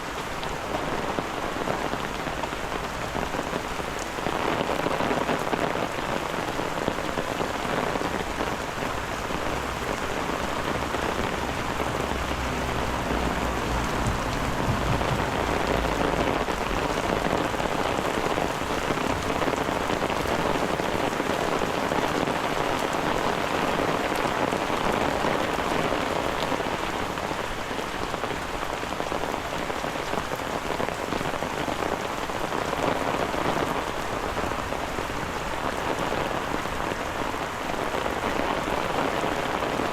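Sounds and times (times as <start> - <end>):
steady rain falling: 0.0 - 39.9
low rumble: 8.8 - 17.8.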